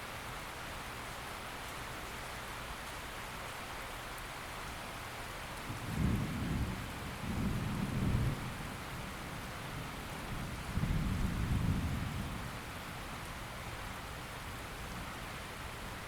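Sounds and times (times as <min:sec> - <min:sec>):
steady rain: 0:00.0 - 0:16.0
rolling thunder: 0:05.8 - 0:08.6.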